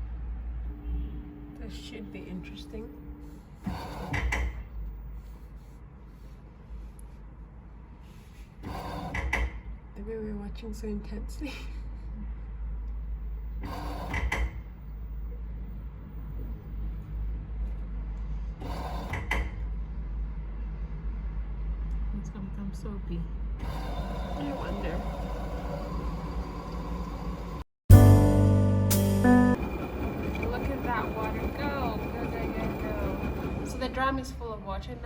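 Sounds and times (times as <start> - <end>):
loud multi-pitch tone: 27.9 - 30.0.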